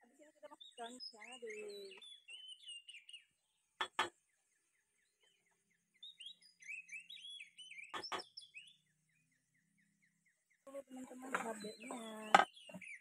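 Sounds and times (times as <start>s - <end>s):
small birds chirping: 0.0s - 13.0s
sharp knocks: 3.8s - 4.1s.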